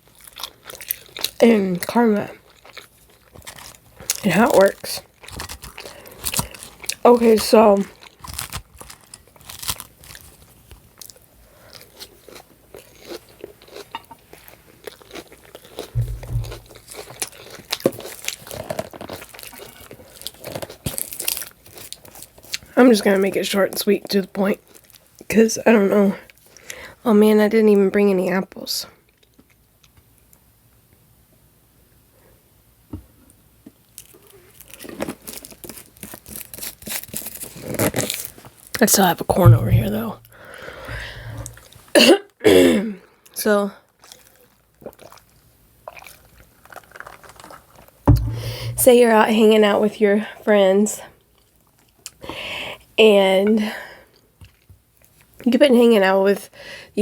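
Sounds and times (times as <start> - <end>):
chewing and crunching food: 0.0 - 27.0, 29.0 - 30.4, 33.0 - 38.9, 43.0 - 48.8, 51.0 - 55.5
knock: 16.0 - 16.6, 39.5 - 40.3, 48.1 - 48.9
low thump: 16.0 - 16.7, 39.4 - 41.6, 48.1 - 49.0.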